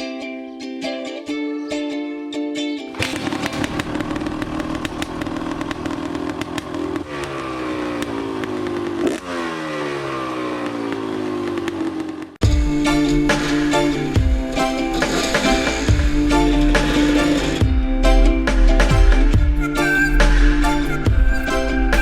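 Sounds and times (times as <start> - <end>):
dirt bike engine revving: 3.0 - 22.0.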